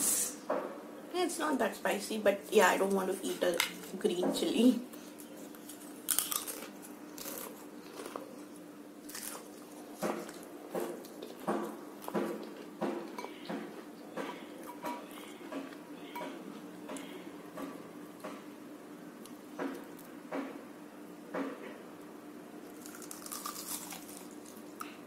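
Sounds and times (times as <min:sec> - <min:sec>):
faint steady hum: 0:00.0 - 0:25.0
crunchy chewing: 0:04.9 - 0:17.2, 0:22.6 - 0:25.0.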